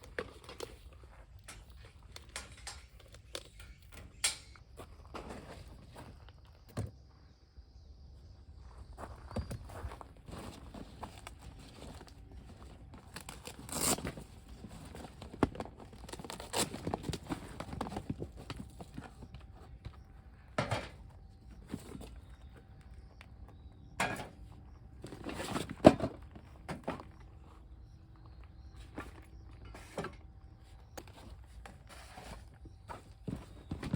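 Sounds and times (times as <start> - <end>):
objects knocking and rustling: 14.6 - 22.8, 23.9 - 27.5.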